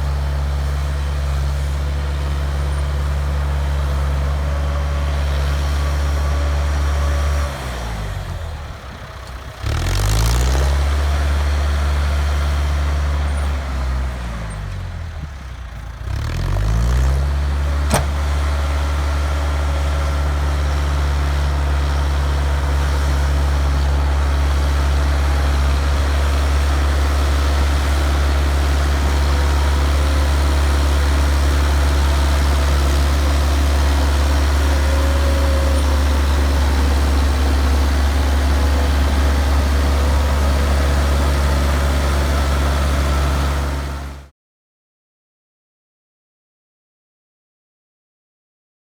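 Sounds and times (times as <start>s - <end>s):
bulldozer engine running: 0.0s - 44.3s.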